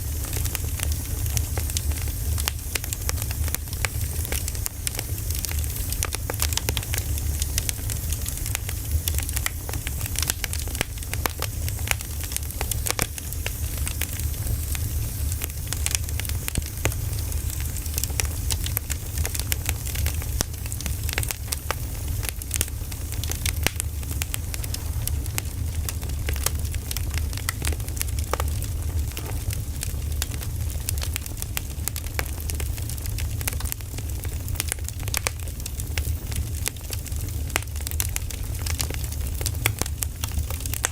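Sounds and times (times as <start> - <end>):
wood fire crackling: 0.0 - 40.9
low rumble: 22.6 - 27.2.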